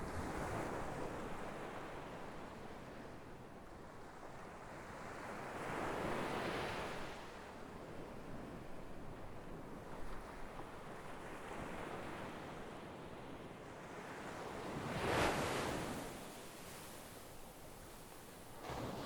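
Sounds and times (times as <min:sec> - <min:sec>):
sea waves washing ashore: 0:14.5 - 0:19.0.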